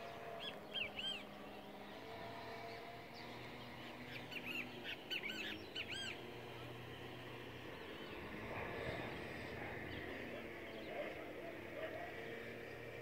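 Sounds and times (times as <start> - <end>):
bird chirping: 0.0 - 1.7, 2.6 - 6.4.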